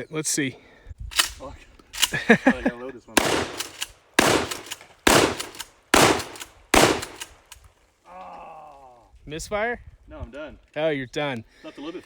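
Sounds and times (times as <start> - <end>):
shotgun shots echoing: 3.2 - 7.6.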